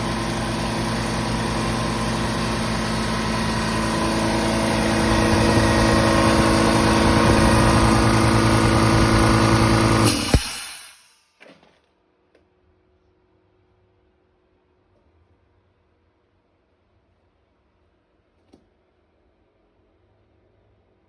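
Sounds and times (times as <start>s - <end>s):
air compressor humming: 0.0s - 10.9s.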